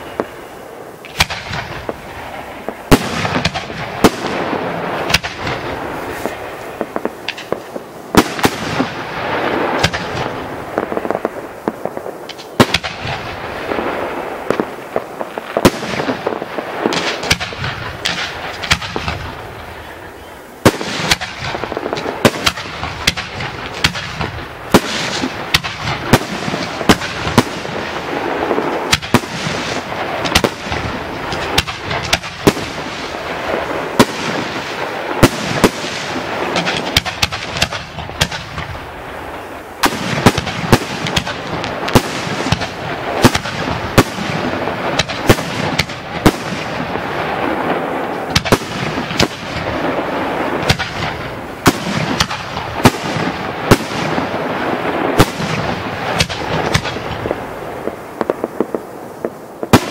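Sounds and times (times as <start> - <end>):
fireworks bangs: 0.0 - 59.9.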